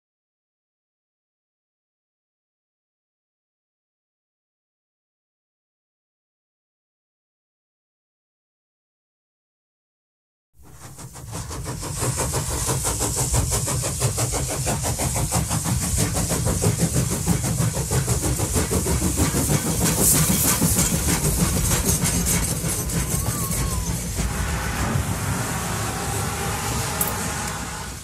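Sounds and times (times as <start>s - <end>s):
train running with clatter: 10.6s - 28.0s.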